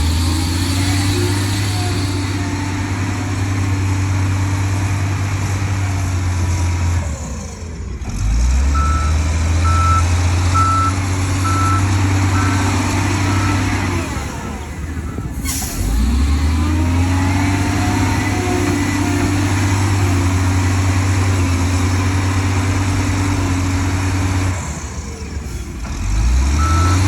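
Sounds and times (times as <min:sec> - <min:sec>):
heavy diesel machine engine: 0:00.0 - 0:27.0
reversing alarm beeping: 0:08.7 - 0:15.4, 0:26.6 - 0:27.0.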